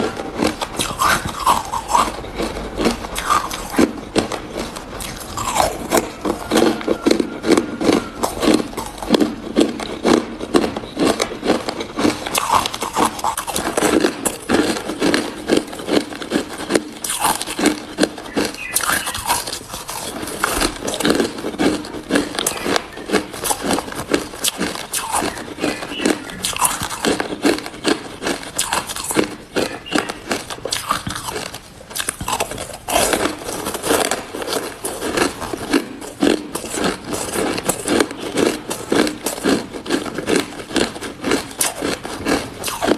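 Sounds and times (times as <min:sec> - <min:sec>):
crunching and chewing ice: 0:00.0 - 0:42.9.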